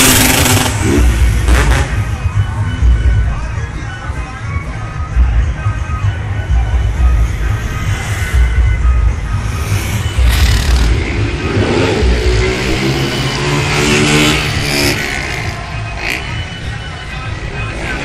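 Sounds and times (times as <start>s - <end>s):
motorcycle engine revving: 0.0s - 2.2s, 7.0s - 16.6s
heavy low rumble: 5.1s - 12.8s.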